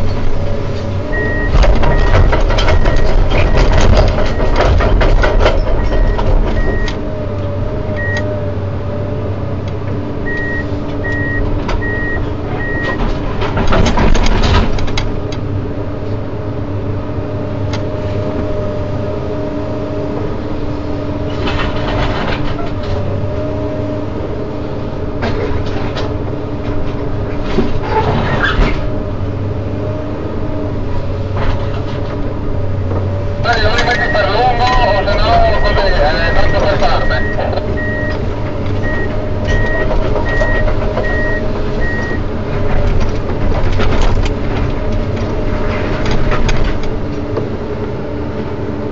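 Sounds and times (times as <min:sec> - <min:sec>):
excavator diesel engine humming: 0:00.0 - 0:27.5, 0:28.2 - 0:48.9
high-pitched warning beep: 0:33.6 - 0:38.2.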